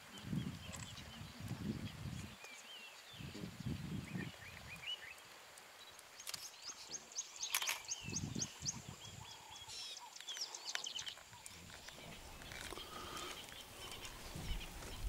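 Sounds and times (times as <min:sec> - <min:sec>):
birds calling: 0:05.9 - 0:15.0.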